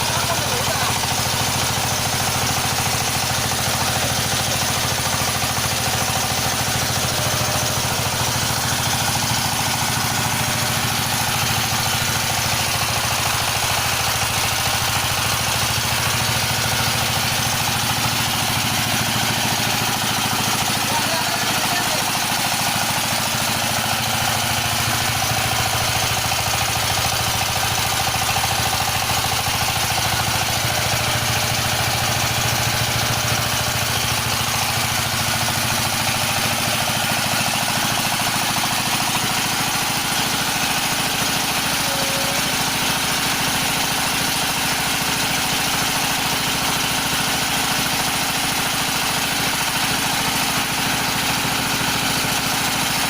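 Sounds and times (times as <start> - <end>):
pellet machine mechanical drone: 0.0 - 53.0.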